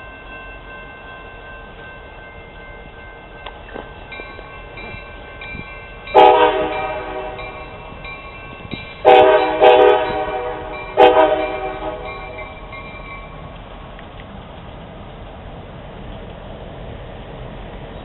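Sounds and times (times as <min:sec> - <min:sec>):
locomotive air horn blasts: 0:06.2 - 0:07.6, 0:09.0 - 0:12.4.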